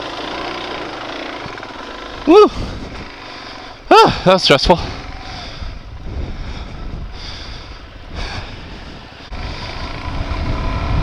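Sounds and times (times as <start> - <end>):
motorcycle engine running: 0.0 - 11.0
wind rumbling on microphone: 2.5 - 3.1, 4.7 - 11.0.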